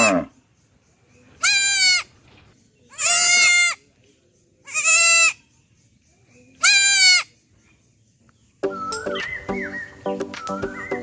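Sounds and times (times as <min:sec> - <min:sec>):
goat bleating: 0:01.4 - 0:02.1, 0:02.9 - 0:03.8, 0:04.7 - 0:05.4, 0:06.6 - 0:07.3
music: 0:08.6 - 0:11.0.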